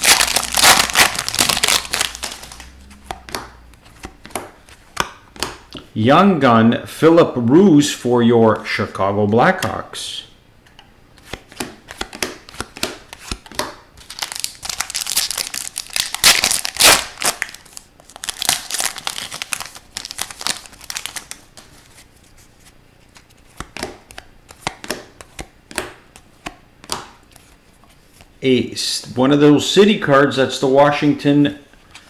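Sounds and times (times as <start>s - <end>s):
foil wrapper tearing and crinkling: 0.0s - 2.8s, 14.0s - 21.5s
cards rustling and clicking: 0.0s - 5.6s, 11.2s - 27.6s.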